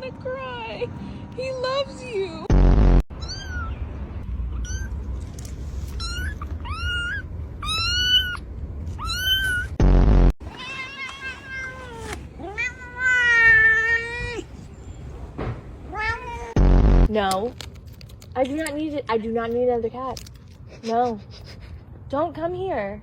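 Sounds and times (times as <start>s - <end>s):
cat meowing: 3.1s - 3.8s, 4.6s - 5.0s, 5.9s - 9.8s, 10.4s - 14.5s, 15.9s - 16.6s.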